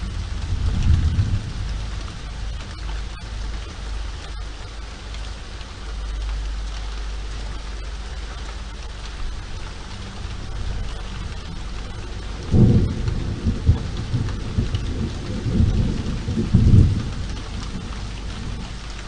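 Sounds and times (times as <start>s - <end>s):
thunder crack: 0.0s - 2.6s, 12.4s - 17.2s
low rumble: 0.0s - 4.4s
steady rain falling: 0.0s - 19.0s.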